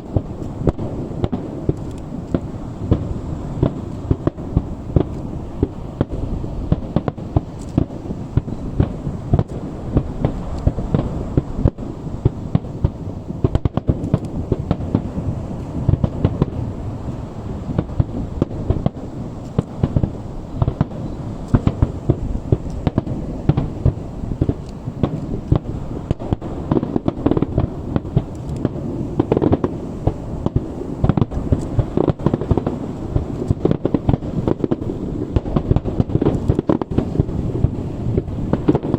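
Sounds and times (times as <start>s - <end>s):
fireworks bursts and bangs: 0.0s - 38.9s.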